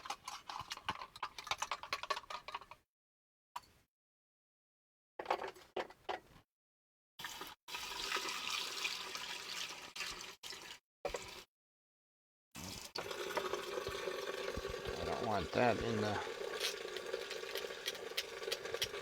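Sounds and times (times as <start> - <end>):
water running from sink tap: 12.7 - 19.0.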